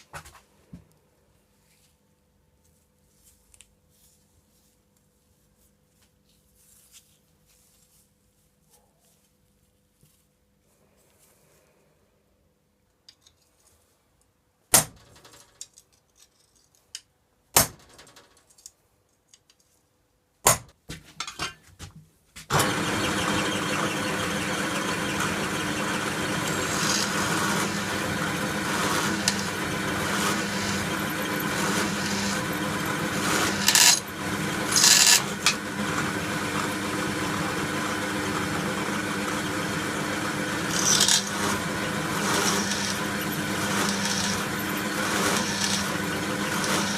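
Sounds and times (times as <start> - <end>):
power tool running: 22.5 - 46.9.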